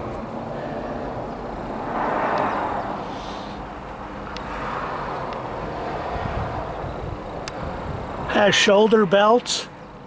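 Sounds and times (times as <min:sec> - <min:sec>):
low traffic rumble: 0:00.0 - 0:10.0
vehicle passing: 0:00.3 - 0:08.3.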